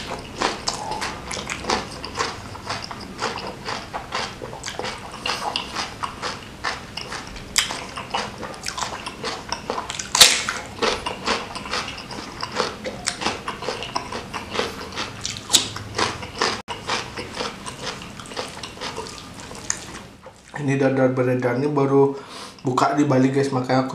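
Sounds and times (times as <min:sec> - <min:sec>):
wet chewing mouth clicks: 0:00.0 - 0:20.6
sharp loud bites: 0:10.0 - 0:11.9.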